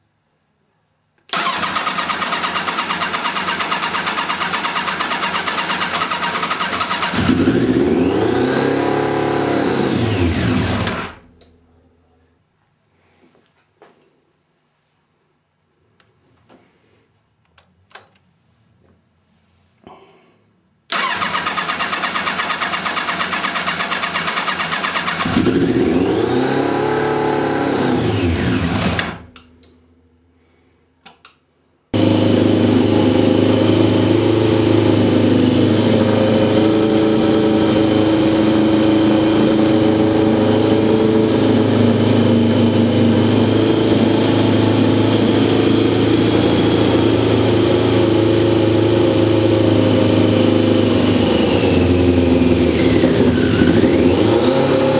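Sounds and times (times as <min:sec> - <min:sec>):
starter motor cranking: 0:01.3 - 0:07.7, 0:20.9 - 0:25.6
motorcycle engine running: 0:01.4 - 0:11.2, 0:20.9 - 0:29.3, 0:32.0 - 0:54.9
clicks: 0:17.4 - 0:18.3, 0:31.0 - 0:31.4.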